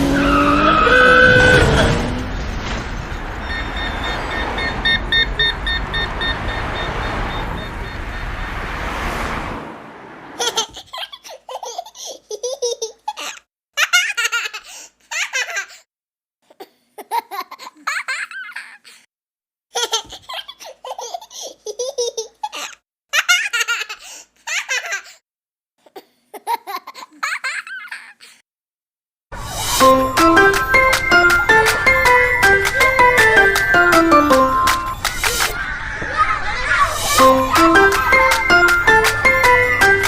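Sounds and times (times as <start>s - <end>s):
young child laughing: 10.4s - 15.8s, 19.7s - 25.2s, 25.8s - 28.4s.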